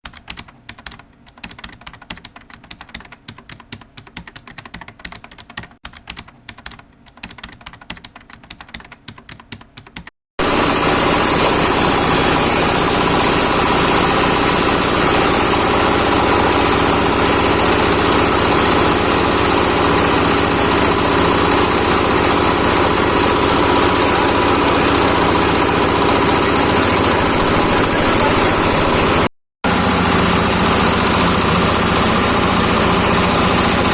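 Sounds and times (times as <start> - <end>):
rapid patter of clicks: 0.0 - 10.1
grinding machine running: 10.4 - 33.9.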